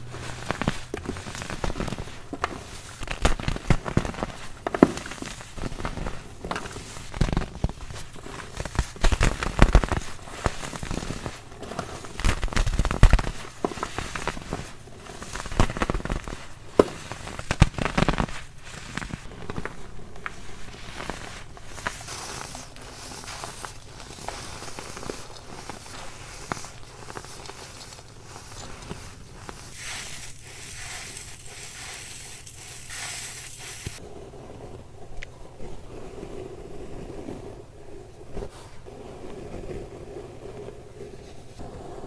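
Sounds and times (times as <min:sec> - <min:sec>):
baking soda crunching: 0:00.0 - 0:34.0.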